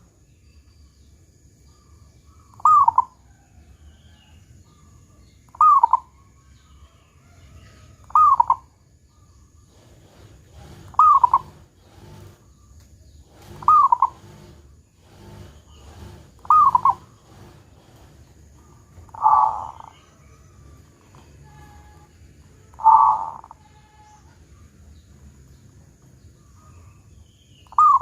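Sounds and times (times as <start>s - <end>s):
dove cooing: 2.6s - 3.2s, 5.5s - 6.1s, 8.0s - 8.7s, 9.7s - 12.4s, 13.3s - 14.6s, 15.3s - 18.1s, 18.9s - 22.1s, 22.7s - 24.3s, 27.7s - 28.0s.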